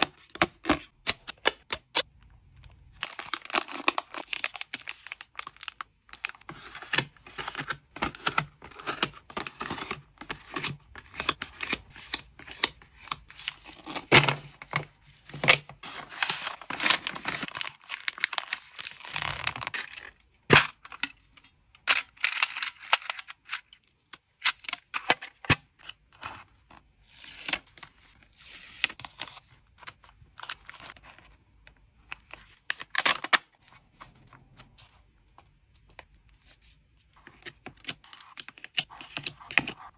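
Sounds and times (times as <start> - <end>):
plastic packaging crinkling: 3.0 - 9.8, 15.8 - 20.1.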